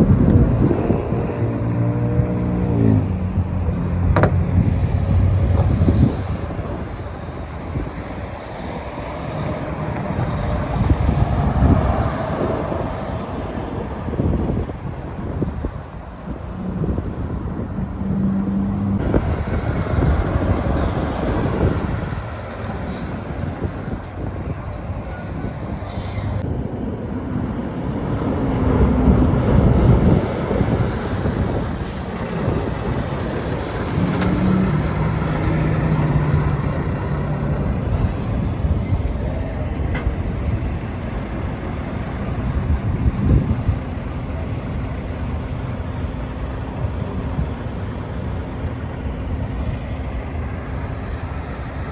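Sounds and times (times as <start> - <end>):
heavy trucks passing: 0.0 - 51.9
high thin squeals: 19.1 - 26.4, 37.5 - 43.6.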